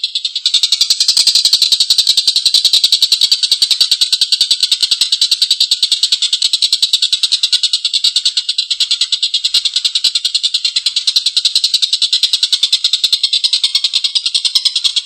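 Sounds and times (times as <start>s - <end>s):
kingfisher harsh chattering call: 0.0s - 5.6s, 6.4s - 15.0s.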